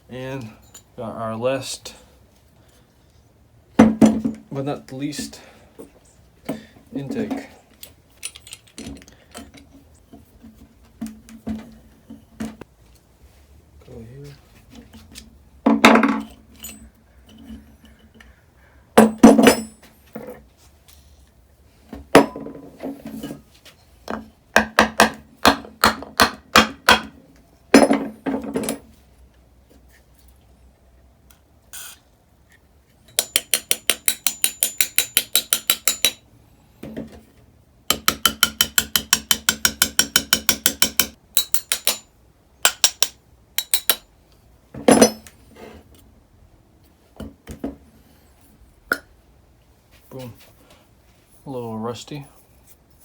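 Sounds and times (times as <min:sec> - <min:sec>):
metal tools knocking and tapping: 0:06.5 - 0:09.7, 0:19.0 - 0:20.4, 0:33.1 - 0:36.2, 0:37.9 - 0:44.1, 0:44.8 - 0:45.4.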